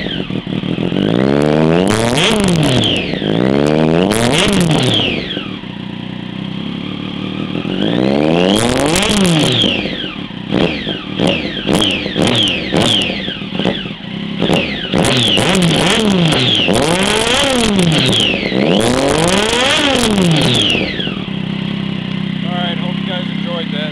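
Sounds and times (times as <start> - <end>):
motorcycle engine revving: 0.0 - 23.9.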